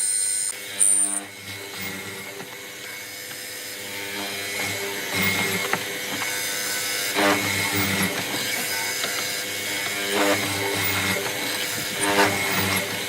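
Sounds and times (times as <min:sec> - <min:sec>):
mechanical clicking and rattling: 0:07.2 - 0:13.0.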